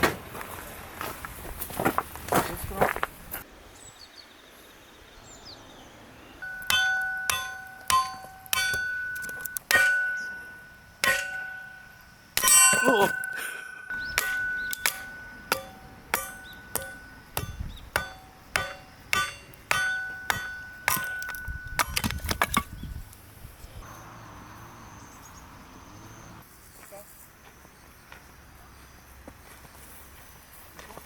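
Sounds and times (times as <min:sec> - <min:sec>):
ringing metal strikes: 0:06.4 - 0:22.7.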